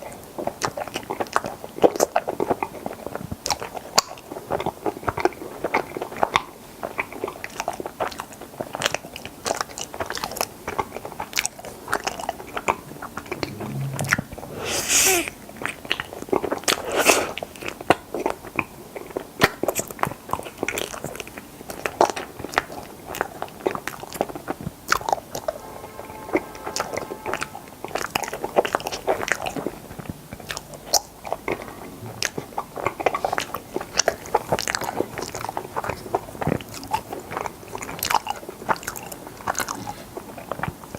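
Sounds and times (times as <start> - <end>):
noisy bursts: 13.3 - 15.4.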